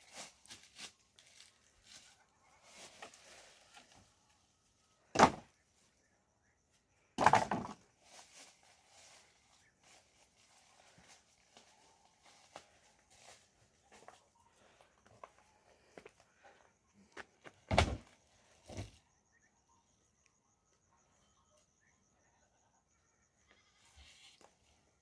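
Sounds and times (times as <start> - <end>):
rustling: 0.0 - 4.3.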